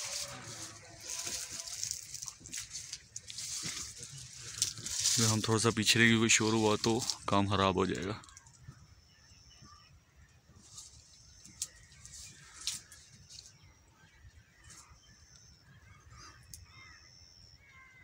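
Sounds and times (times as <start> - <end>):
thin high birdsong: 0.0 - 18.0.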